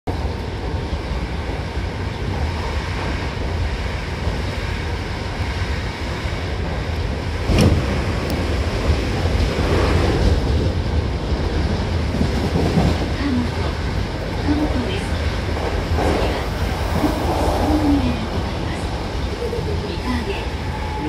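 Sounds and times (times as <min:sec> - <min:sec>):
train wheels rumbling on rail: 0:00.1 - 0:21.0.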